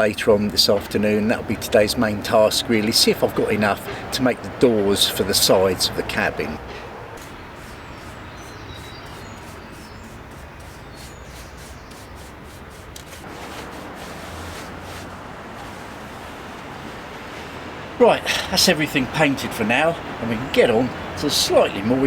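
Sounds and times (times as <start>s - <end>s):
paintbrush rubbing on wood: 7.2s - 16.1s.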